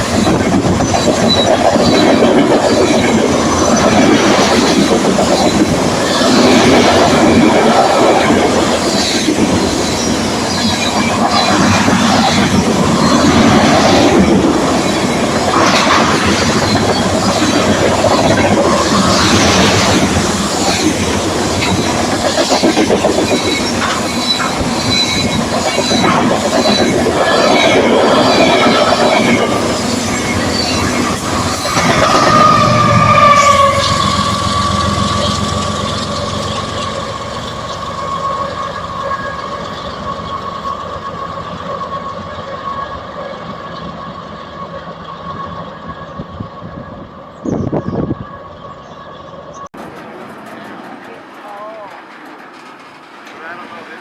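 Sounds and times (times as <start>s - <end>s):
train wheels clacking over rail joints: 0.0s - 42.4s, 49.8s - 54.0s
high-pitched wheel squeal: 23.2s - 49.7s.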